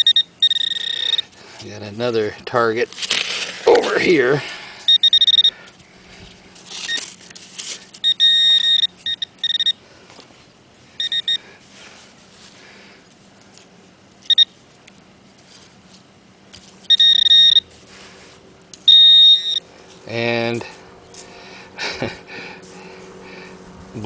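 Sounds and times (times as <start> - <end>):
metal detector beeps: 0.0 - 1.3, 4.9 - 5.6, 8.0 - 9.8, 11.0 - 11.4, 14.2 - 14.5, 16.8 - 17.7, 18.9 - 19.6.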